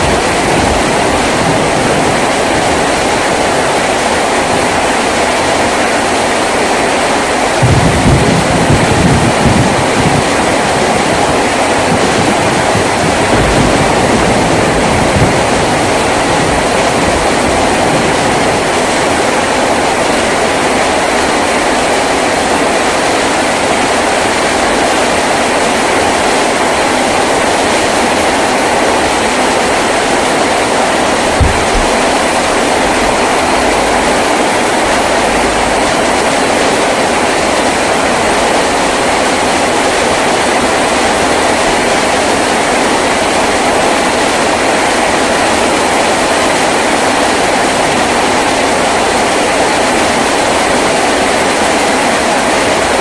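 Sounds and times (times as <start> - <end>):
heavy rain on a tin roof: 0.0 - 53.0
low knocks: 11.9 - 19.2, 30.9 - 36.0.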